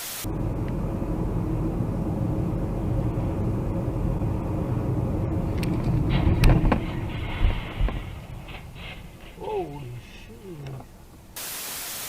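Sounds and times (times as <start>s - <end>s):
car engine and road rumble: 0.2s - 11.4s.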